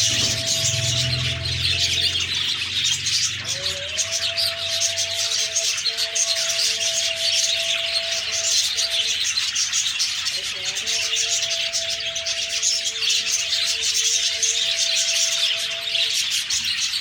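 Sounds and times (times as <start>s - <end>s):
budgerigars chirping: 0.0s - 17.0s.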